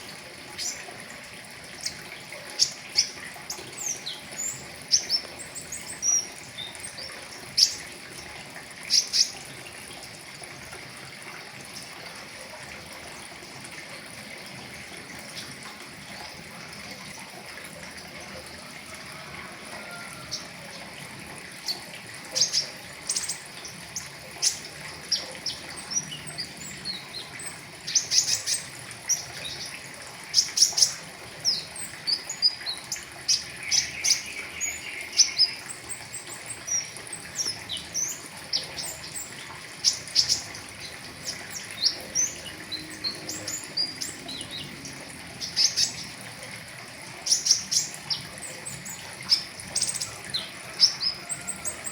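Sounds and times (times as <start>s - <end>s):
bird chirping and twittering: 0.6s - 0.9s, 1.8s - 7.9s, 8.9s - 9.4s, 21.6s - 46.2s, 47.2s - 51.9s.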